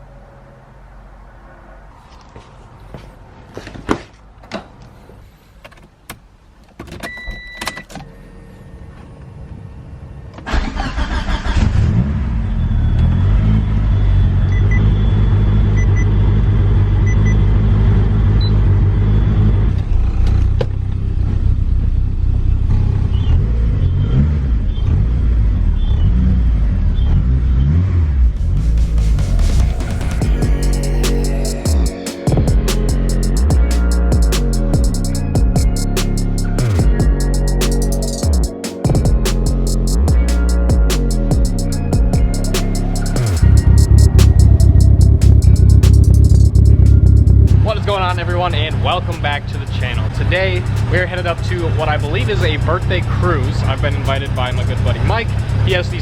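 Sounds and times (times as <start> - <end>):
car engine starting and idling: 10.3 - 14.0, 28.0 - 38.3, 38.9 - 55.9.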